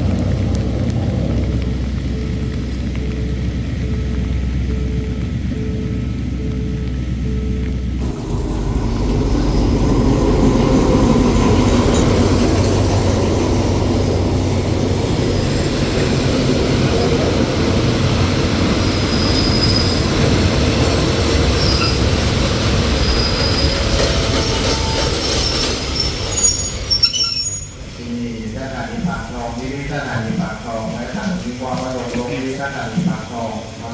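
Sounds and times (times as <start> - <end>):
train wheels rumbling on track: 0.0 - 33.9
high-pitched wheel squeals: 18.8 - 22.3, 22.9 - 28.0.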